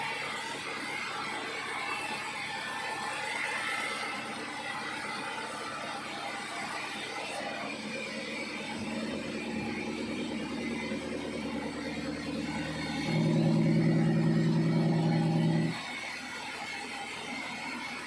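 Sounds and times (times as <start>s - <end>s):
sawmill machinery humming: 7.0s - 15.8s
deep motor hum: 7.7s - 15.8s.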